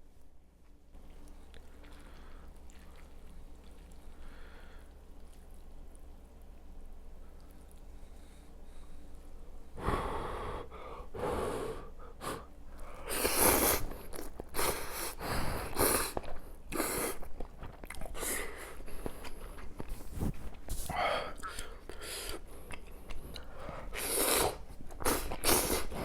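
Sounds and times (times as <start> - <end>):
noodles being slurped: 13.0 - 26.0.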